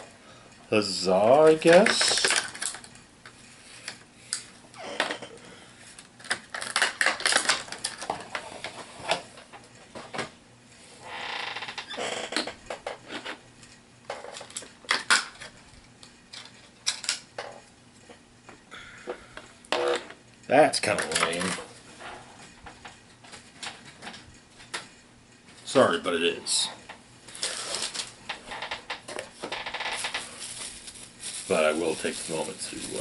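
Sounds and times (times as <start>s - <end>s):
plastic rustle: 5.8s - 8.8s, 27.3s - 33.0s
plastic packaging crinkling: 6.2s - 8.3s, 27.3s - 33.0s.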